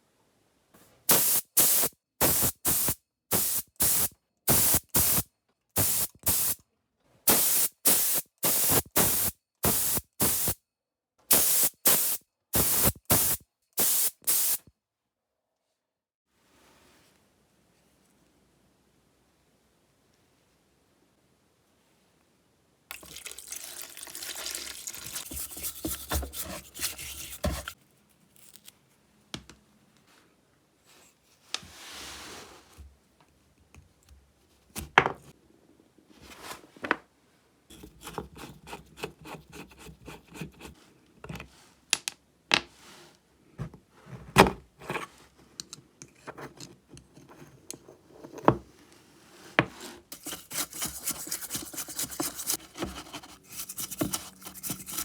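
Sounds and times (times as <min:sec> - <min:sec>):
scraping and rubbing metal: 0:25.3 - 0:27.8, 0:50.1 - 0:55.0.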